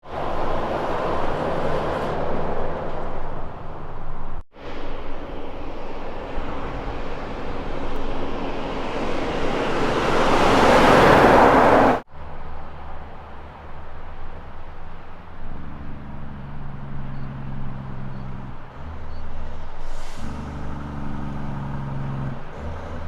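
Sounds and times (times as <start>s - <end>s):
truck diesel engine: 0.0s - 23.0s
tyres on road: 0.0s - 23.0s.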